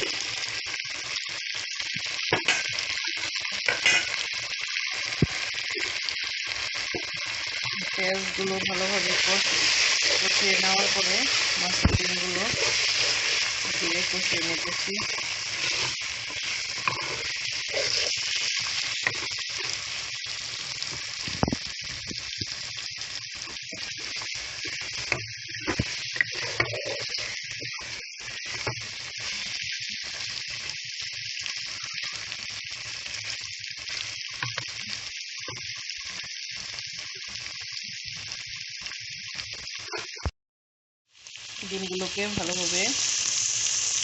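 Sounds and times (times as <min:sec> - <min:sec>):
fish roe sizzling in oil: 0:00.0 - 0:40.3, 0:41.1 - 0:44.0.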